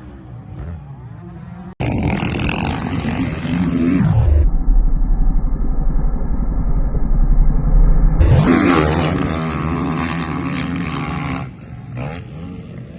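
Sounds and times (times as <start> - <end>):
motocross bike engines revving: 0.0 - 4.4, 8.2 - 12.9.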